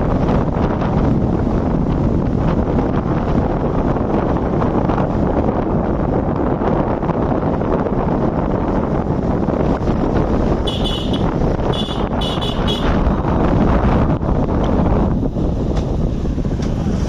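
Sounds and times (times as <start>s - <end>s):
bike road noise: 0.0s - 17.0s
wind on microphone: 0.0s - 17.0s
high-pitched horn toots: 10.6s - 13.0s.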